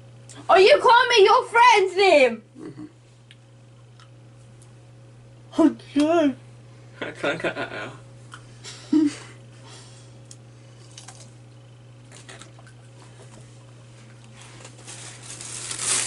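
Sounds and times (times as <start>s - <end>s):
steady low hum: 0.0s - 16.0s
person grunting: 2.6s - 2.9s.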